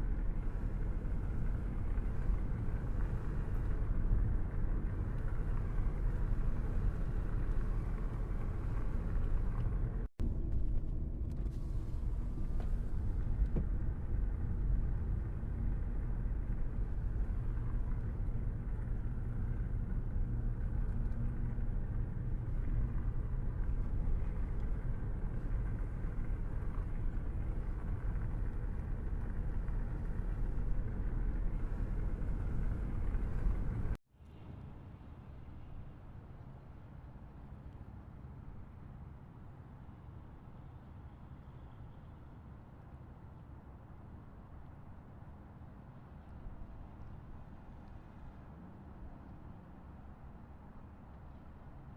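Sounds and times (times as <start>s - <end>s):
car driving along road: 0.0s - 34.0s.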